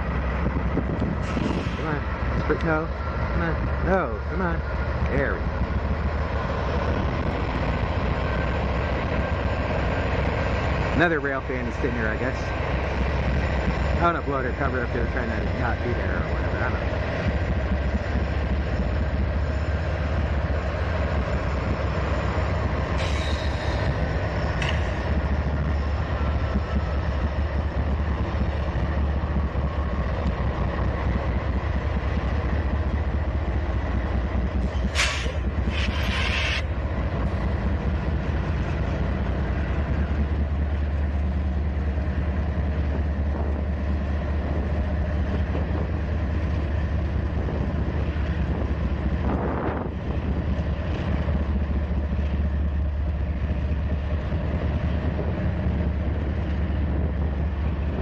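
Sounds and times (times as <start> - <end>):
freight train rolling past: 0.0 - 58.0
low locomotive engine rumble: 0.0 - 58.0.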